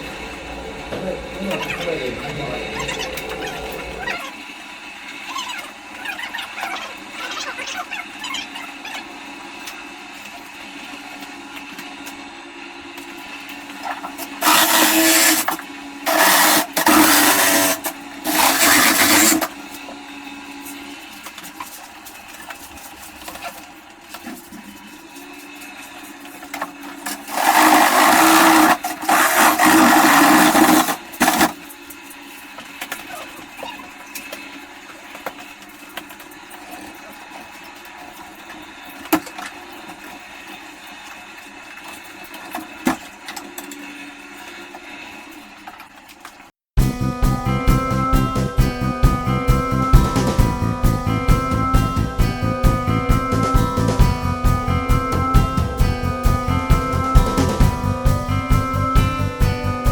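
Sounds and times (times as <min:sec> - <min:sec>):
steady hum: 0:00.0 - 0:05.1
small electric motor running: 0:14.2 - 0:21.1, 0:26.7 - 0:31.6.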